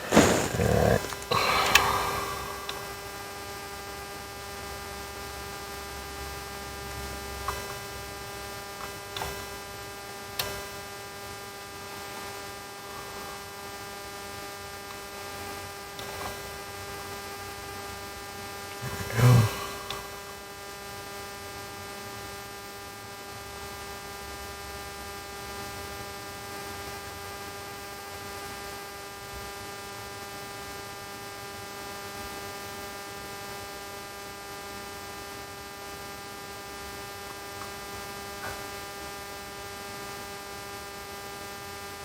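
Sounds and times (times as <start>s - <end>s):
electrical hum: 0.0s - 3.0s.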